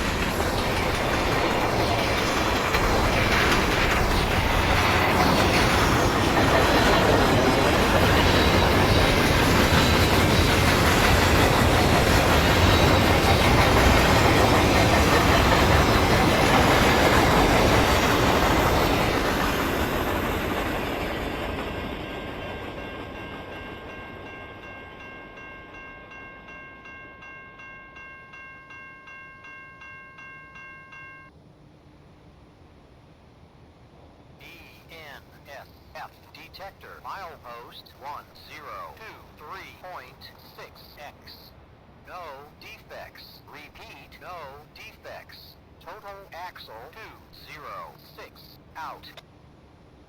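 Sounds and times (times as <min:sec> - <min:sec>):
wheels clacking on rail joints: 0:00.0 - 0:24.0
crossing bell ringing: 0:00.0 - 0:31.3
freight train rolling past: 0:00.0 - 0:48.7.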